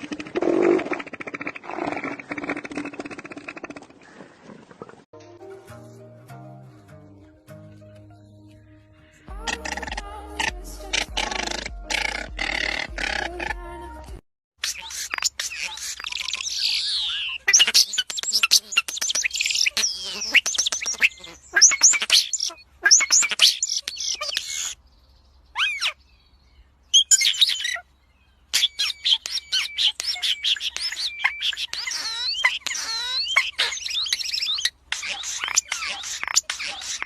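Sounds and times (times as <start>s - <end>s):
birds chirping and squawking: 8.5s - 13.9s, 14.6s - 37.0s.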